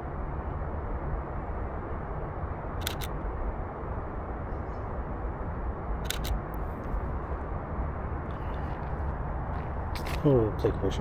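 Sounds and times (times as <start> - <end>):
camera shutter clicking: 2.8 - 3.1, 6.0 - 6.4.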